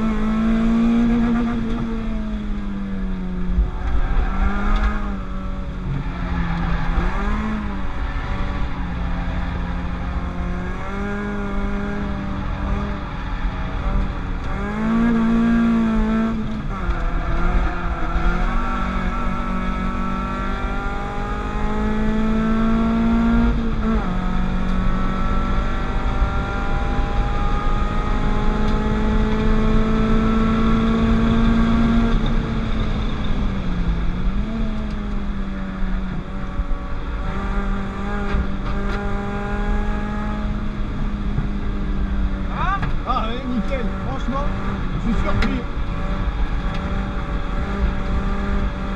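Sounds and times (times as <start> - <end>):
racing car engine revving: 0.0 - 48.9.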